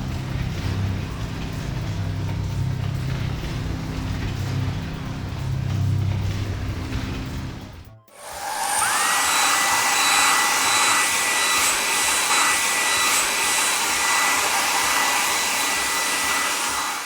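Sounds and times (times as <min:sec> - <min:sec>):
electric blower rushing air: 0:08.1 - 0:17.0.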